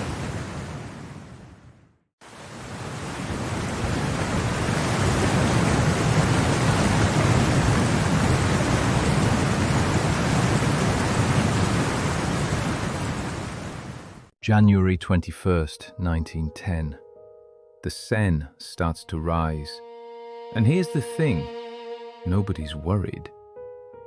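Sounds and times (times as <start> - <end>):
heavy rain: 2.2 - 14.3.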